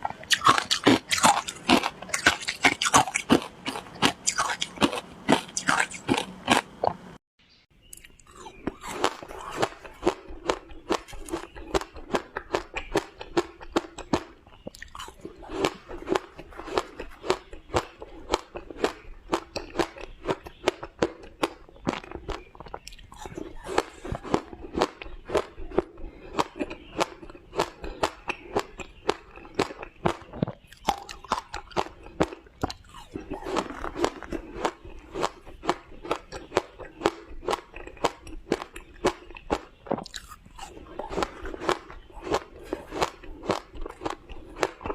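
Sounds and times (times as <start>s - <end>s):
ice crunching: 32.9s - 39.2s.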